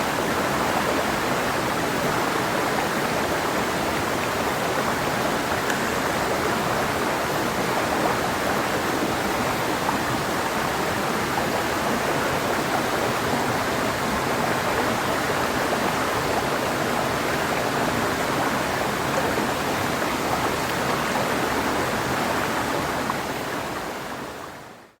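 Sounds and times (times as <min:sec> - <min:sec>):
river flowing over rocks: 0:00.0 - 0:24.8.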